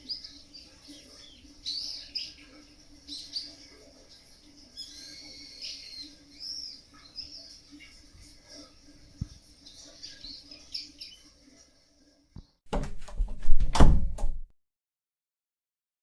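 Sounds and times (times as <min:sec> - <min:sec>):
birds chirping faintly: 0:00.0 - 0:12.6
knocks and clattering thuds: 0:12.7 - 0:14.5.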